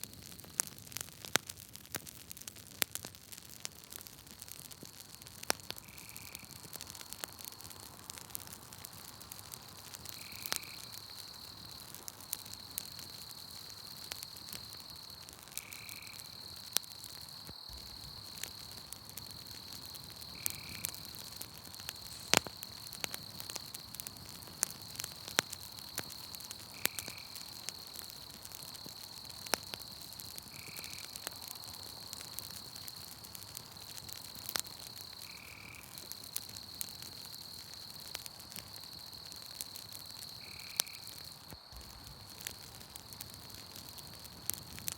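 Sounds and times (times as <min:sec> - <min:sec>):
campfire crackling and popping: 0:00.0 - 0:44.9
night insects trilling: 0:04.5 - 0:44.9.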